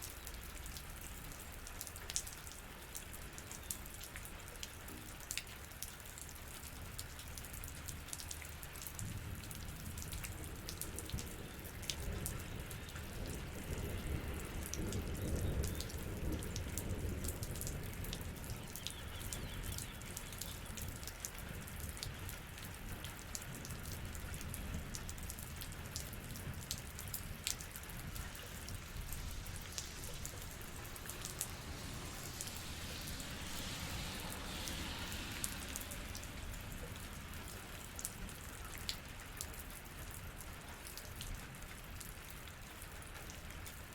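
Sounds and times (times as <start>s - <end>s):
rain falling: 0.0s - 43.9s
raindrops tapping sharply: 8.0s - 39.6s
low rumble: 27.7s - 38.3s.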